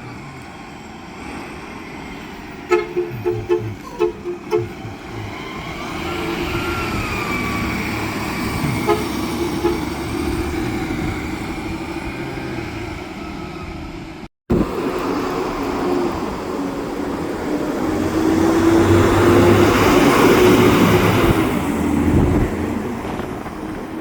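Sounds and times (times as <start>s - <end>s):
garbage truck engine running: 0.0s - 18.2s
engine whine: 0.0s - 24.0s
truck horn toots: 2.6s - 11.1s.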